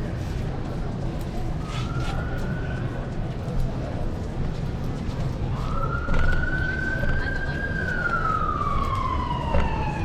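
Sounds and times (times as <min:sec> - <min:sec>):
low street noise: 0:00.0 - 0:10.0
siren wailing: 0:05.6 - 0:10.0.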